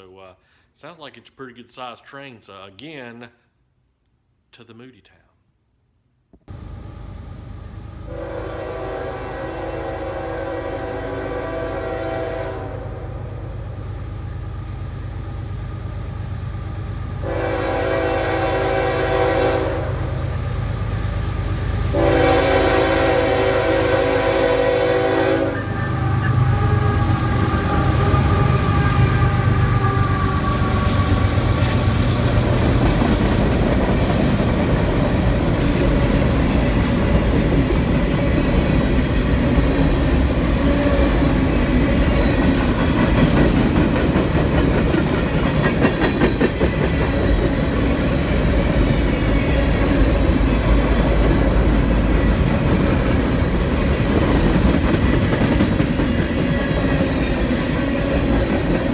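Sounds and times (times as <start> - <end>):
diesel locomotive engines droning: 6.5 - 58.9
freight cars rumbling: 25.6 - 58.9
wheels clacking over rail joints: 29.8 - 58.9.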